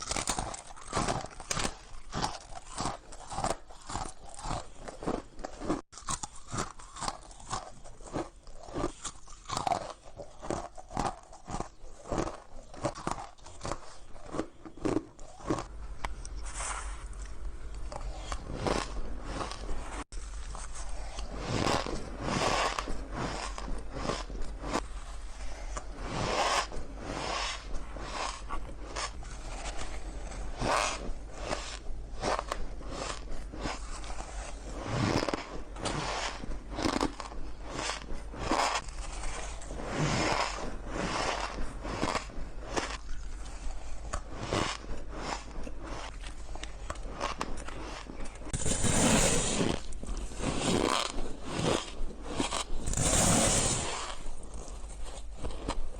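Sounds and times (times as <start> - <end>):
shaved ice crunching: 47.2 - 55.0.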